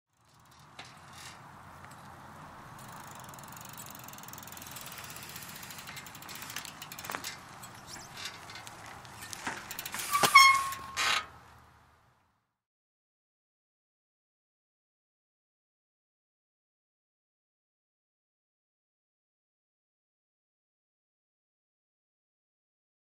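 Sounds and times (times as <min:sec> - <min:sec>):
bicycle clicks and knocks: 0:00.1 - 0:11.4
bicycle tyres rolling: 0:00.1 - 0:12.3
bicycle brakes squeaking: 0:02.8 - 0:11.4.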